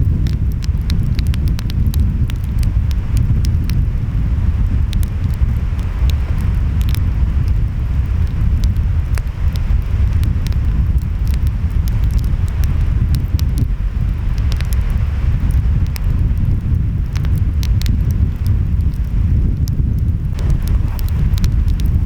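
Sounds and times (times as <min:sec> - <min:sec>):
wind: 0:00.0 - 0:22.0
wood fire crackling and popping: 0:00.0 - 0:22.0
surf rumbling: 0:20.2 - 0:22.0.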